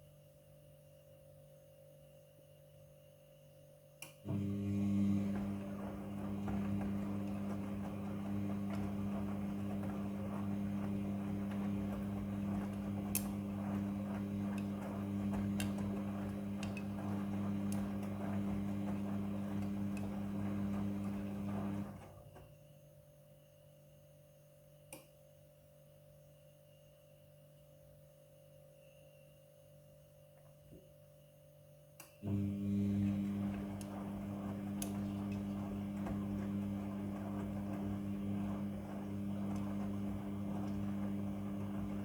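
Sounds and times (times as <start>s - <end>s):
washing machine humming: 4.2s - 22.7s, 32.2s - 42.0s.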